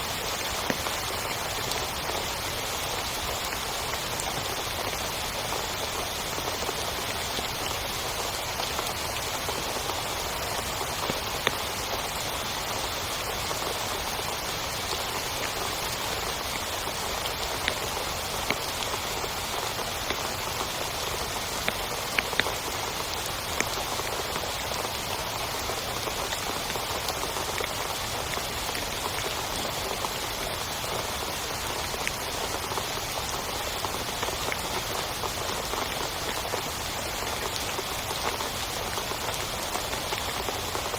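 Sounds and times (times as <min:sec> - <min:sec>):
heavy rain on a tent: 0:00.0 - 0:40.9
single raindrops ticking: 0:19.9 - 0:22.8.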